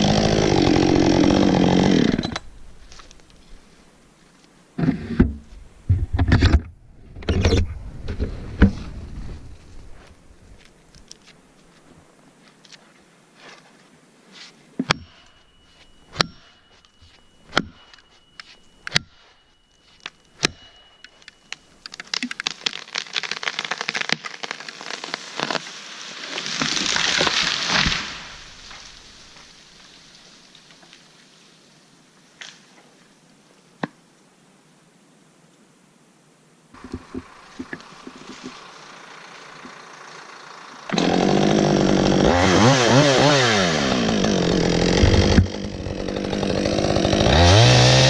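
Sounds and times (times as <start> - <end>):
tree falling with cracking branches: 21.8 - 30.8
loud crash of tree: 22.4 - 29.2.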